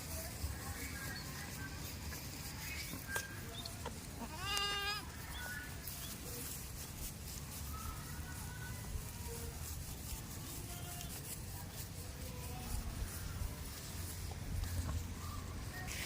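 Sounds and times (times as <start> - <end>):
goat bleating: 3.8 - 5.1.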